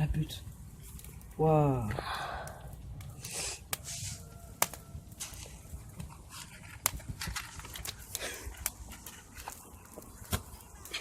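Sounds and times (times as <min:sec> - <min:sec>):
campfire crackling: 0:00.0 - 0:11.0
fire popping: 0:00.0 - 0:11.0
flaring material hissing: 0:00.6 - 0:04.6.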